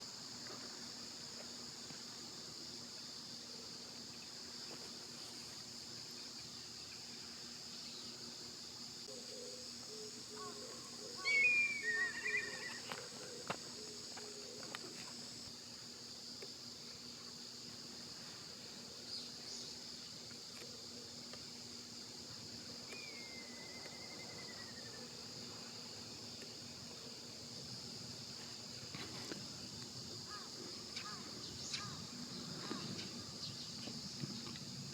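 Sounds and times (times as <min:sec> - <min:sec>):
high-pitched insect chorus: 0:00.0 - 0:34.9
falling whistled call: 0:11.2 - 0:12.9, 0:23.0 - 0:25.0.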